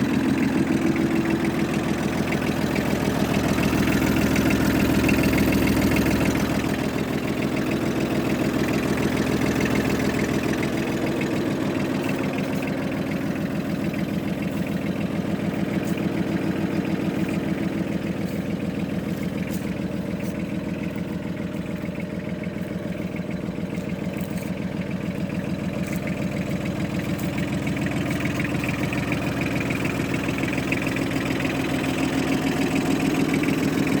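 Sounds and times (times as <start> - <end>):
tractor diesel engine idling: 0.0 - 34.0.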